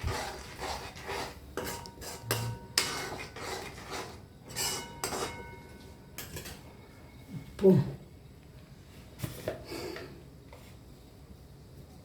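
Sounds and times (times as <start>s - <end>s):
metal utensil scraping a pot: 0.0s - 6.6s
faint metallic ring: 4.5s - 7.5s.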